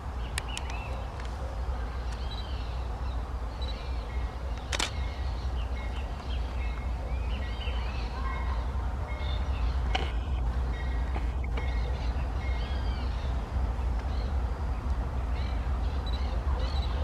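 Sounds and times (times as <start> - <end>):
small birds chirping: 0.0 - 17.0
steady low rumble: 0.0 - 17.0
sharp click: 4.6 - 5.0.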